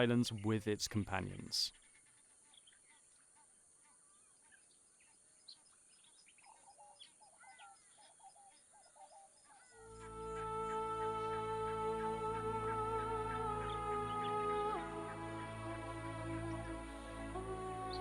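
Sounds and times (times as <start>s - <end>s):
faint bird chirps: 0.0s - 12.1s
soft music with sustained notes: 9.8s - 18.0s.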